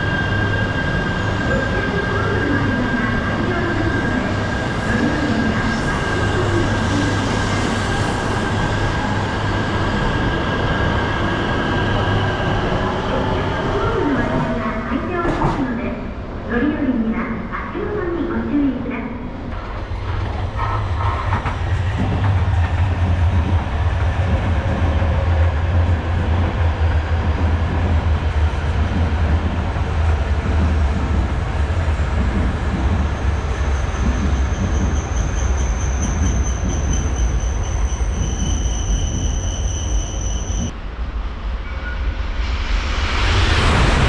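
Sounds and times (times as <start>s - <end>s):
train rumbling past: 19.3s - 44.0s.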